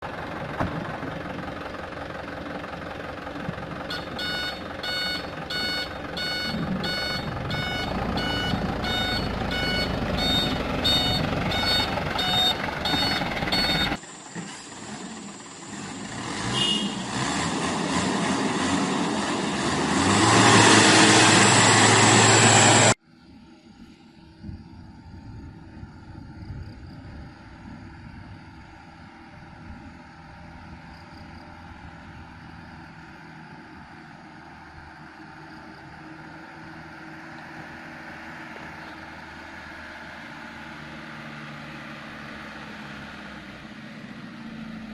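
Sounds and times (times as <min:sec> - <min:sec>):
truck engine running: 0:00.0 - 0:23.0
reversing alarm beeping: 0:03.9 - 0:14.0.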